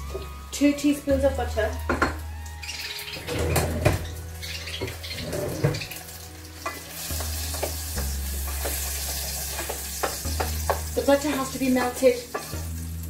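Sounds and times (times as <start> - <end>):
food sizzling in a pan: 4.0 - 13.0.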